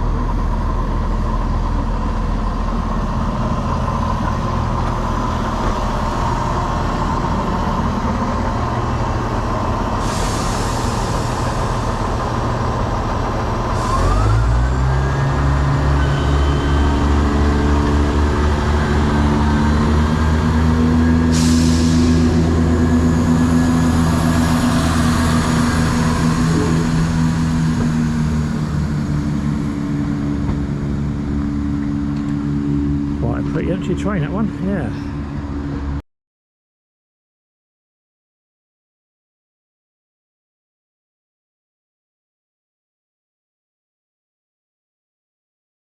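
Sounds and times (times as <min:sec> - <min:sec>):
diesel train engine: 0:00.0 - 0:36.0.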